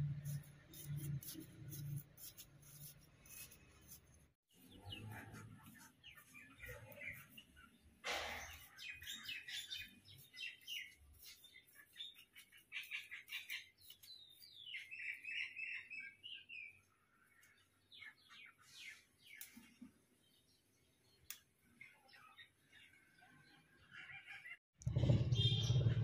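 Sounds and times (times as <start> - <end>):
birds chirping: 4.5 - 26.0.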